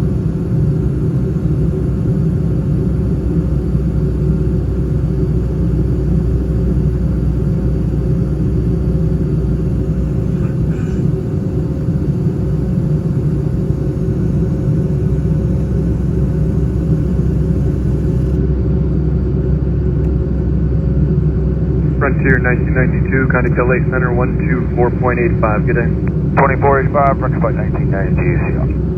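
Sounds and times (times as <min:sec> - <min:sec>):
faint constant hum: 0:00.0 - 0:28.9
jet engine rumble in cabin: 0:00.0 - 0:28.9.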